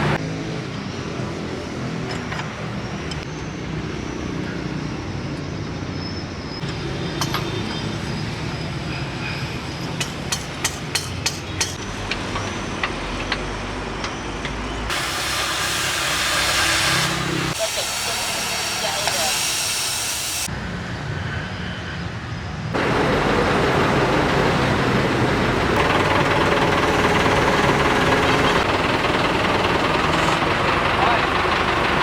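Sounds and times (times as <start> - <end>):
loud steady hiss: 14.9 - 20.5
machine running: 14.9 - 20.5, 22.8 - 32.0.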